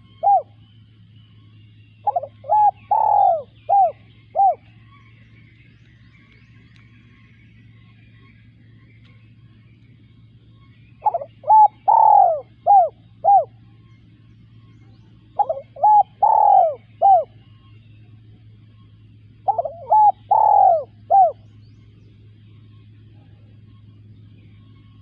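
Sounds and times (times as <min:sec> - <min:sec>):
dove cooing: 0:00.0 - 0:00.6, 0:02.0 - 0:04.9, 0:11.0 - 0:13.6, 0:15.1 - 0:17.7, 0:19.4 - 0:21.5
faint low hum: 0:00.0 - 0:25.0.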